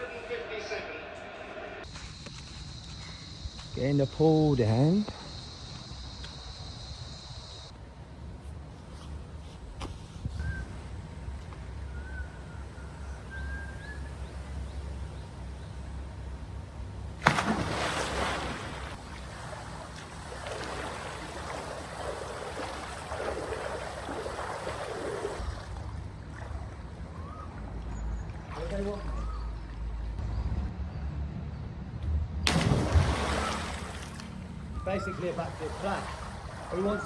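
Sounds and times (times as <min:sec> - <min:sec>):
water sloshing: 0:17.1 - 0:30.2, 0:32.5 - 0:37.0
person splashing into pool: 0:17.2 - 0:27.2, 0:28.3 - 0:29.3, 0:32.5 - 0:34.6, 0:35.3 - 0:37.0.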